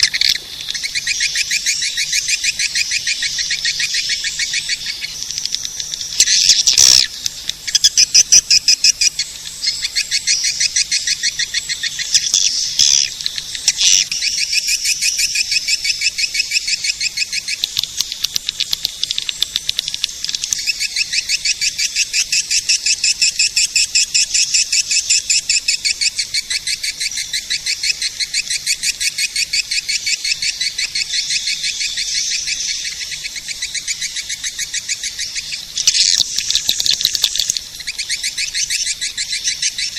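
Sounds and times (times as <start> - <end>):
swiftlets twittering: 31.8 - 39.9.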